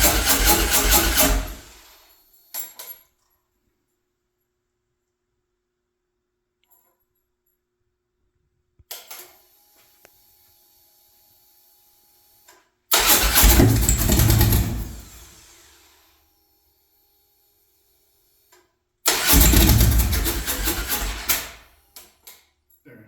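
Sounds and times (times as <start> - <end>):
engine cranking and firing: 0.0 - 2.0, 12.9 - 15.9, 19.1 - 21.8.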